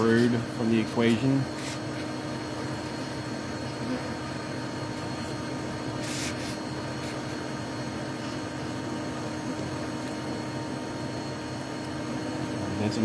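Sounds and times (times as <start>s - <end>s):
short hiss: 6.0s - 7.2s.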